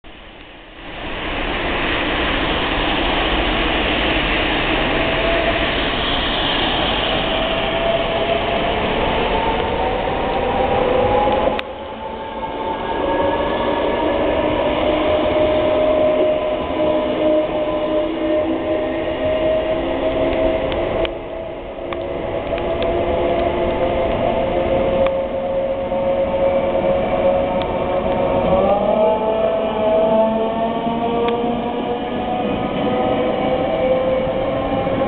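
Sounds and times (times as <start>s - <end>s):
train whine: 0.1s - 35.0s.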